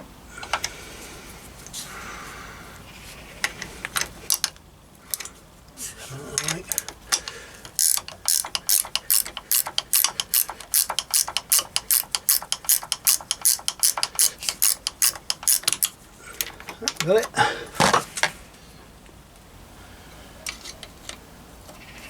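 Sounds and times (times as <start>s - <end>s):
ratchet wrench clicking: 6.4s - 16.0s.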